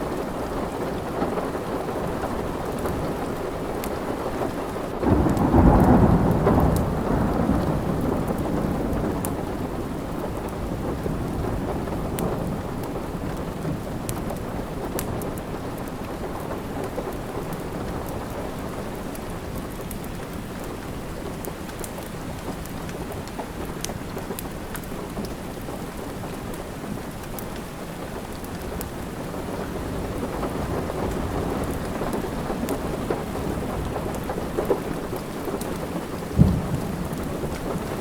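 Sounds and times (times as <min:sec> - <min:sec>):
steady rain: 0:00.0 - 0:38.0
thunderclap rumbling: 0:05.0 - 0:14.8, 0:29.5 - 0:38.0.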